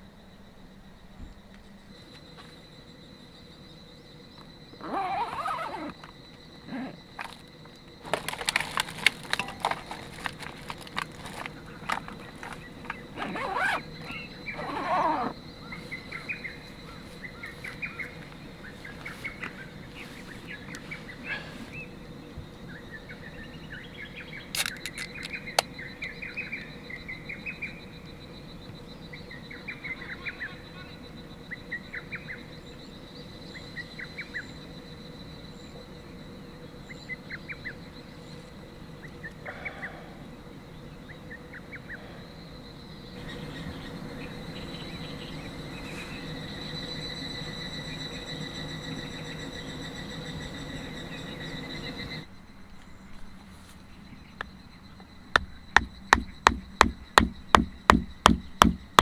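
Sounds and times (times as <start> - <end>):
small birds chirping: 8.0 - 52.3.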